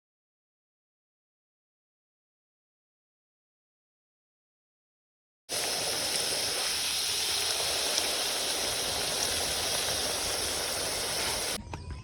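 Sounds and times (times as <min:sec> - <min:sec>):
water rushing: 0:05.5 - 0:11.6.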